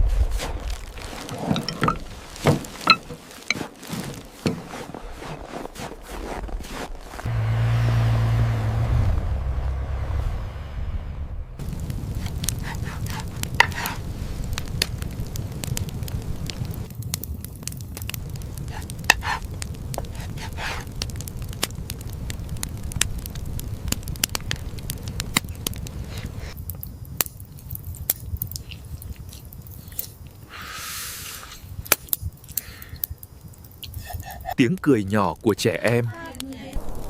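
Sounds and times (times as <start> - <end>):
wood fire crackling: 0.0 - 7.3, 11.6 - 37.0
low rumble: 7.3 - 18.7, 36.8 - 37.0.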